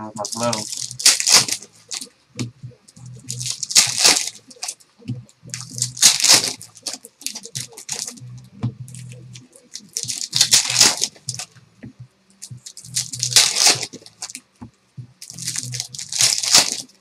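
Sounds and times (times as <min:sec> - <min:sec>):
foil wrappers tearing and crinkling: 0:00.2 - 0:02.1, 0:03.3 - 0:04.8, 0:05.5 - 0:08.2, 0:09.7 - 0:11.5, 0:12.7 - 0:14.4, 0:15.2 - 0:16.9.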